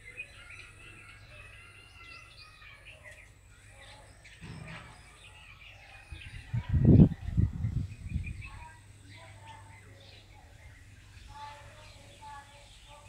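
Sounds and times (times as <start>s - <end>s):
small birds chirping and whistling: 0.0s - 13.0s.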